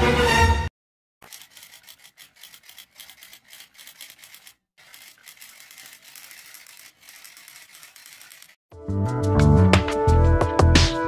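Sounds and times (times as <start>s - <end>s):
typewriter typing: 1.2s - 8.6s.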